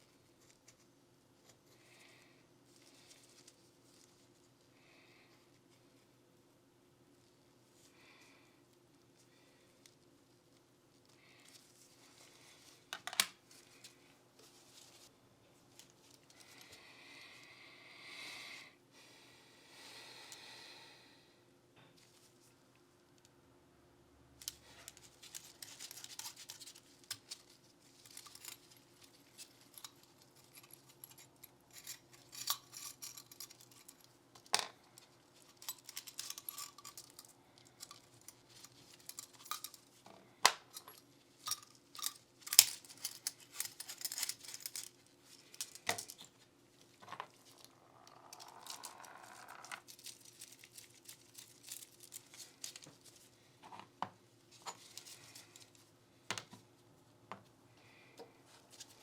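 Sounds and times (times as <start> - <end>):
clicks and taps of metal parts: 12.9 - 13.3.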